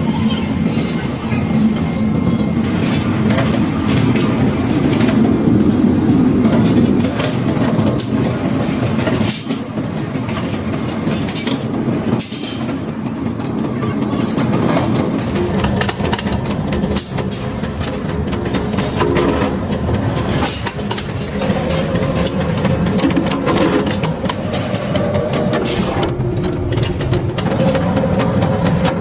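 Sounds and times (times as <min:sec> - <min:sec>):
heavy machinery running: 0:10.4 - 0:29.0.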